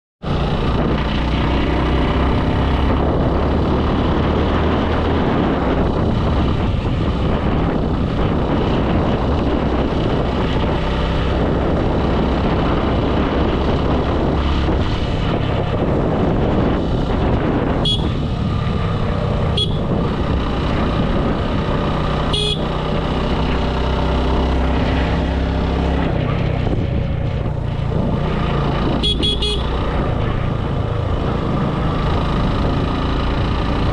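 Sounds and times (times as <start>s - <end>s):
motorcycle engine running: 0.2s - 33.9s
wind and road noise: 0.2s - 33.9s
horn toots: 17.8s - 18.3s, 19.5s - 20.0s, 22.3s - 22.8s, 29.0s - 29.8s.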